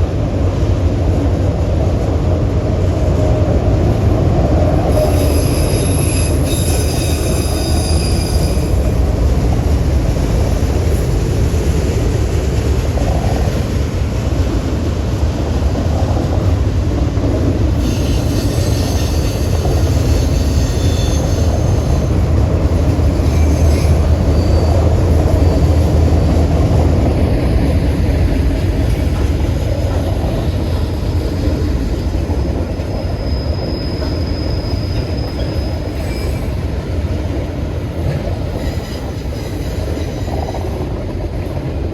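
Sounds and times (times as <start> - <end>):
train rumbling past: 0.0 - 41.9
train wheels squealing: 4.9 - 9.1, 17.7 - 25.8, 30.6 - 36.7, 38.4 - 40.9.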